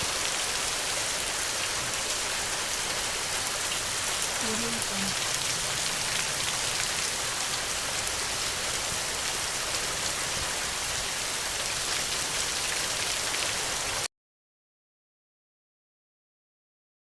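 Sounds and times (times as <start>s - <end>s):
steady rain falling: 0.0s - 14.1s.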